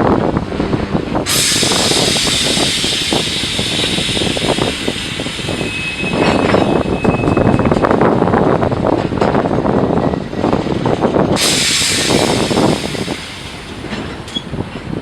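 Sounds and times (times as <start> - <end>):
low rumble: 0.0 - 5.1
train air brakes hissing: 1.2 - 7.5, 11.4 - 14.6.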